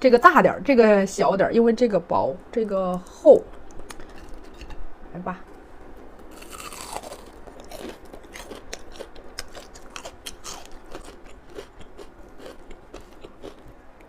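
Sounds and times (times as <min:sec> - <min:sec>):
crunchy chewing: 0:03.5 - 0:04.9, 0:06.3 - 0:13.9.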